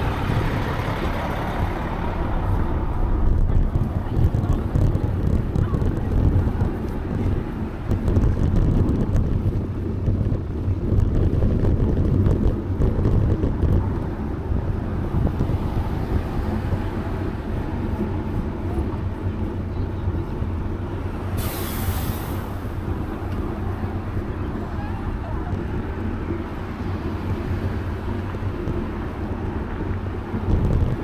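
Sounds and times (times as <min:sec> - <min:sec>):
passing road traffic: 0:00.0 - 0:31.0
wind on microphone: 0:00.0 - 0:31.0
short hiss: 0:21.4 - 0:22.5.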